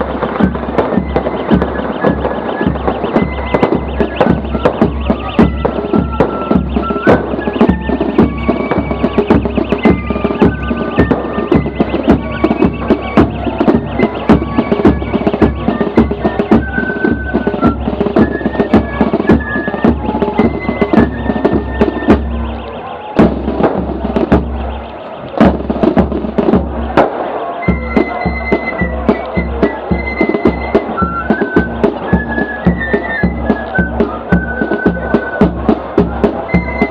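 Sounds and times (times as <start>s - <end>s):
fife and drum corps playing: 0.0s - 36.9s
snare and bass drums: 0.0s - 36.9s.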